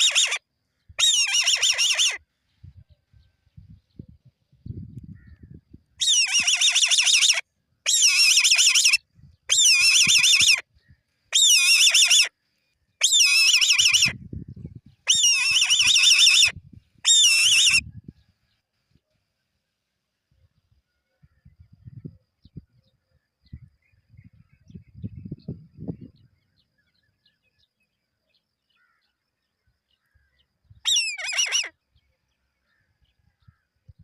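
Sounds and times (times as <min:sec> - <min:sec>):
eagle calling: 0:00.0 - 0:00.4, 0:01.0 - 0:02.2, 0:06.0 - 0:10.6, 0:11.4 - 0:12.3, 0:13.0 - 0:14.2, 0:15.1 - 0:17.8, 0:30.9 - 0:31.7.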